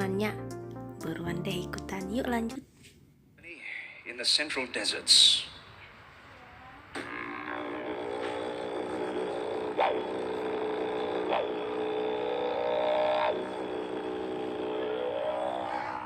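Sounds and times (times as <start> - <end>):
voice imitating a didgeridoo: 6.5 - 16.0.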